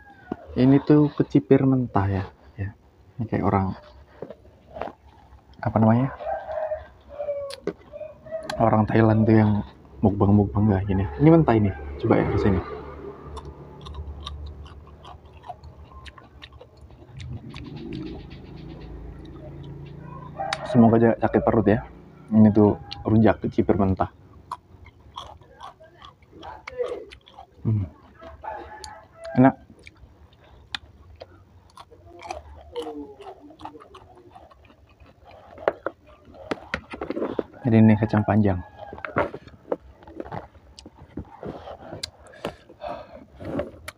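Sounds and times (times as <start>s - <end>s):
crisp crunchy chewing: 3.3s - 9.8s, 12.6s - 20.8s, 22.5s - 43.9s
wet mouth clicks: 29.8s - 37.1s, 41.7s - 42.6s.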